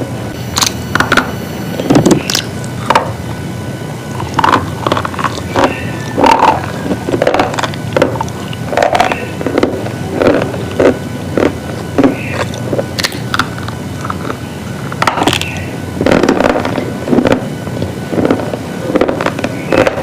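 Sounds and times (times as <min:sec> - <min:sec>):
steady low hum: 0:00.0 - 0:20.0
slate pieces cracking: 0:04.2 - 0:17.4.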